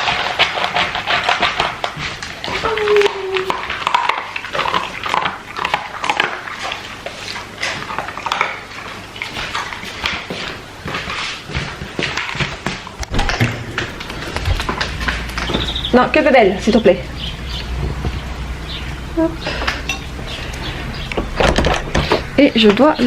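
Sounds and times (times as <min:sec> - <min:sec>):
dog whining: 0:02.4 - 0:03.7.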